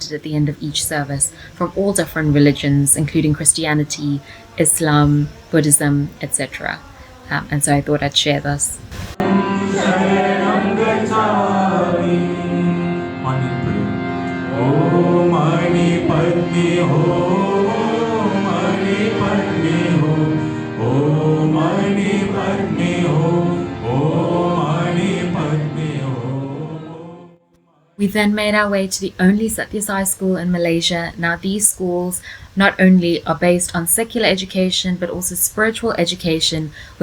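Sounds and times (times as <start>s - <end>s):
voices chanting prayers: 0.0s - 27.4s.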